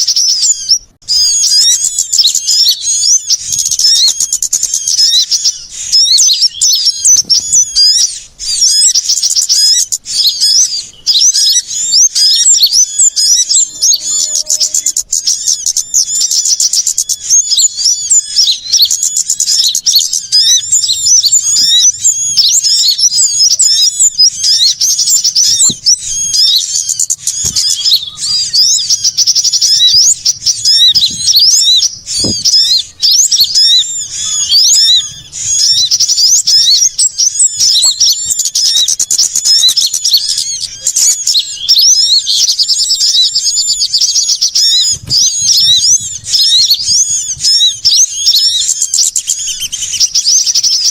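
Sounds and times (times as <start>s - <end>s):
songbirds chirping and trilling: 0.0s - 50.9s
soft thumps: 32.0s - 32.7s.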